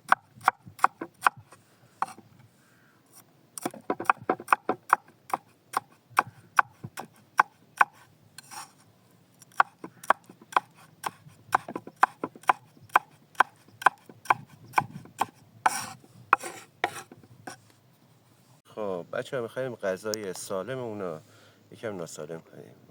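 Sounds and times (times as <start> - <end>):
knife chopping on wooden board: 0.1 - 1.4, 2.0 - 2.2, 3.6 - 8.0, 9.5 - 17.6.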